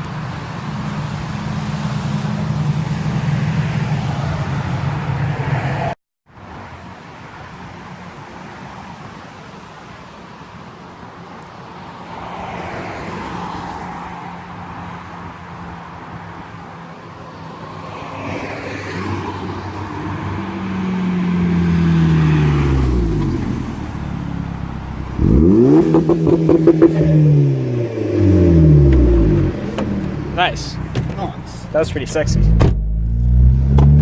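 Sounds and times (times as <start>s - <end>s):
car accelerating past: 18.2s - 30.5s.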